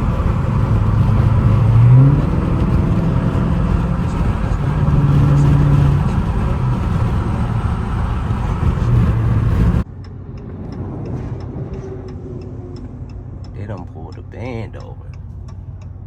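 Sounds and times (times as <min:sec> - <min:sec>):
car road and engine noise: 0:00.0 - 0:16.0
faint regular ticking: 0:00.0 - 0:16.0
in-car hum: 0:00.0 - 0:16.0.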